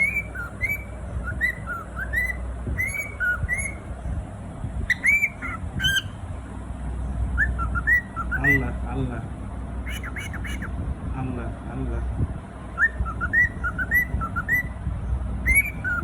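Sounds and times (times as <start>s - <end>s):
cockatiel whistled chirps: 0.0s - 3.8s, 4.9s - 6.2s, 7.4s - 8.7s, 9.9s - 10.7s, 12.8s - 14.8s, 15.4s - 16.0s.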